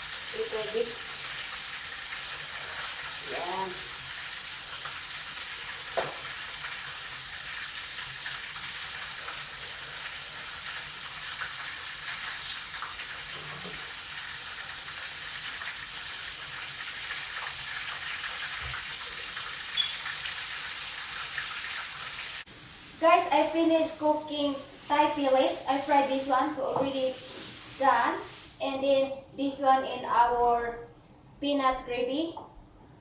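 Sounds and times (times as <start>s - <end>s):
chicken frying in hot oil: 0.0s - 28.8s.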